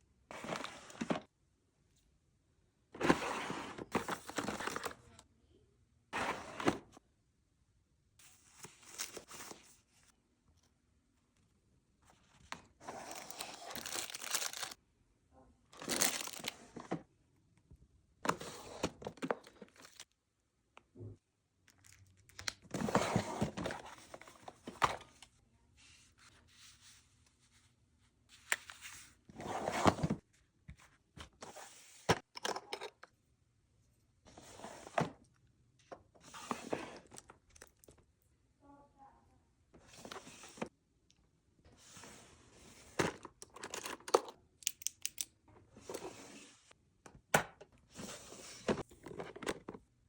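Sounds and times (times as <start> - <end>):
packaging rustling and crinkling: 12.8 - 14.8, 15.8 - 16.7.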